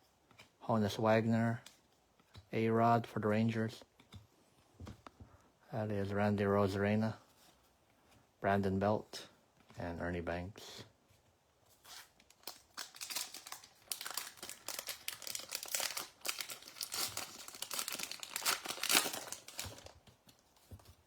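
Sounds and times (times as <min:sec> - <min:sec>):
card pack wrapper crinkling: 0:11.9 - 0:20.1.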